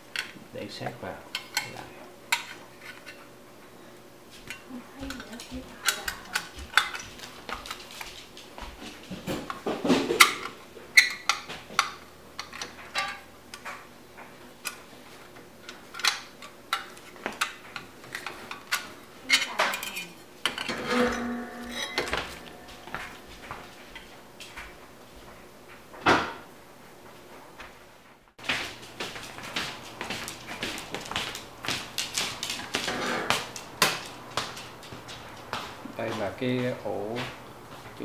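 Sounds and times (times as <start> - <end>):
metal clinks and knocks of tools: 18.7 - 24.6
scraping rattle: 19.3 - 24.1.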